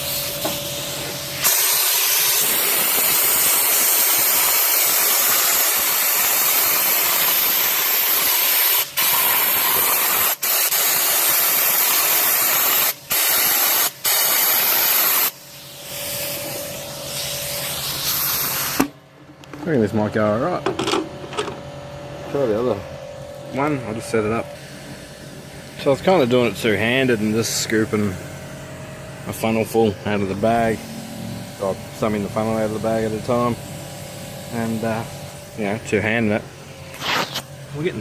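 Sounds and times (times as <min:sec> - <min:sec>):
sandblasting gun hissing: 0:00.0 - 0:18.9
steady machine hum: 0:00.0 - 0:38.0.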